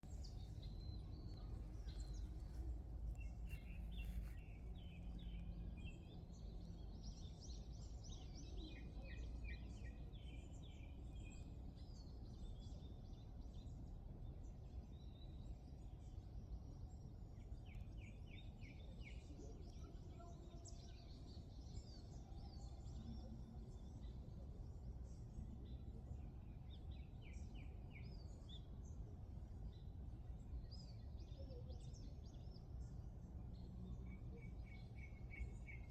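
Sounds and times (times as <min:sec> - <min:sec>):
low background rumble: 0:00.0 - 0:07.0.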